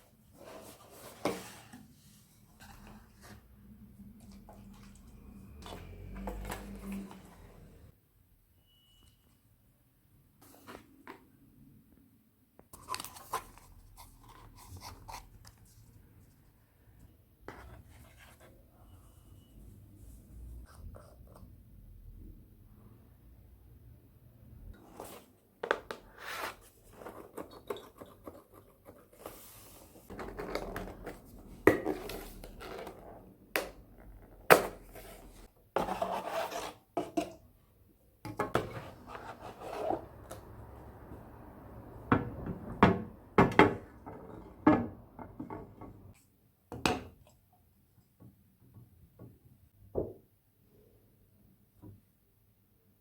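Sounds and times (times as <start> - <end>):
scraping and rubbing: 38.6 - 40.3.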